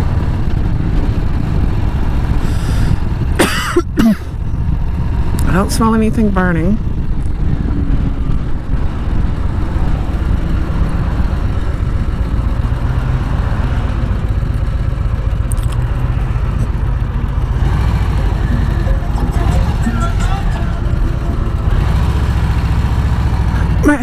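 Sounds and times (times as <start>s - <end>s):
wind noise on microphone: 0.0s - 12.9s
motorcycle engine rumble: 0.0s - 24.0s.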